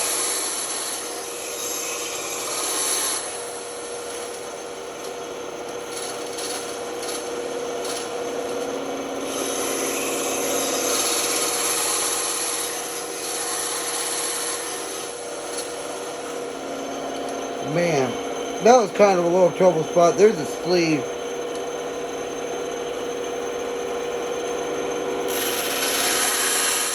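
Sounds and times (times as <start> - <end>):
band saw cutting wood: 0.0 - 4.5, 6.0 - 21.2, 25.2 - 26.9.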